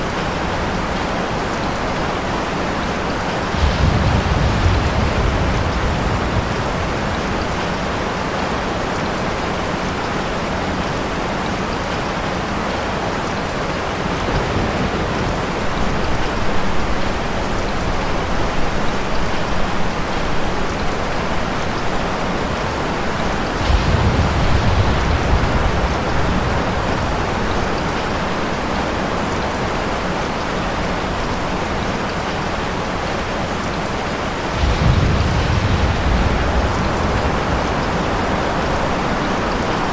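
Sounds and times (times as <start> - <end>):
steady rain falling: 0.0 - 39.9
rolling thunder: 2.9 - 8.8, 13.8 - 29.5, 34.3 - 39.9.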